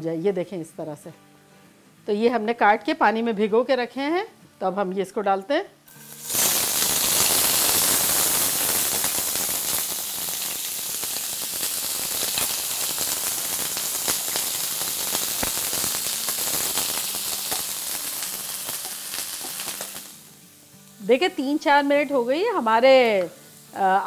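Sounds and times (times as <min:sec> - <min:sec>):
potatoes sizzling in hot oil: 0:05.9 - 0:24.0.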